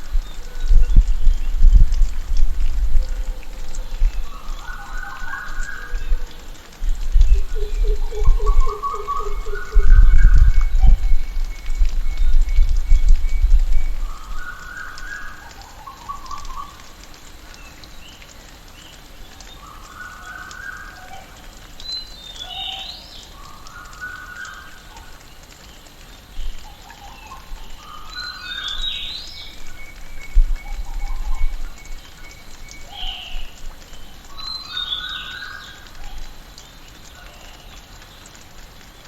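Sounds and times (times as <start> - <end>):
bird song: 0.0 - 1.9, 3.0 - 16.9, 17.5 - 39.0
low rumbles: 0.0 - 14.4
steady background hiss: 0.0 - 39.0.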